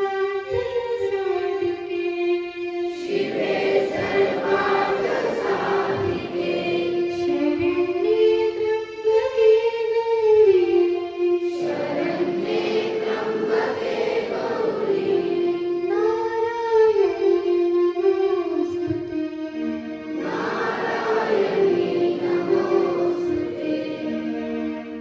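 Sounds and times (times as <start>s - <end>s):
group singing in unison: 3.0s - 7.4s, 11.5s - 15.6s, 20.2s - 24.6s.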